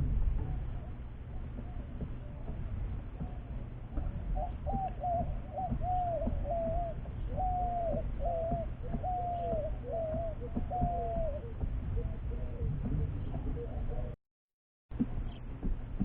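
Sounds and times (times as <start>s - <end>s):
low rumble: 0.0s - 14.2s
bird whistling calls: 4.3s - 12.8s.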